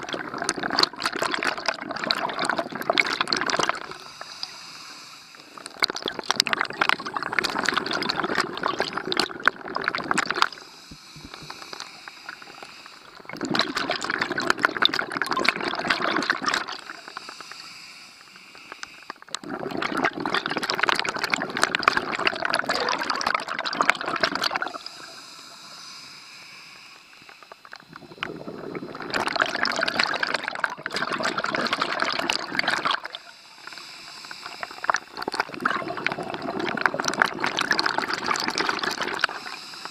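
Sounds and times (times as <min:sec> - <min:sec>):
diver exhaling bubbles underwater: 0:00.0 - 0:04.8, 0:05.4 - 0:17.8, 0:19.1 - 0:26.0, 0:27.3 - 0:39.9
diver inhaling through regulator: 0:03.4 - 0:05.8, 0:06.6 - 0:20.3, 0:24.0 - 0:30.5, 0:31.3 - 0:39.9.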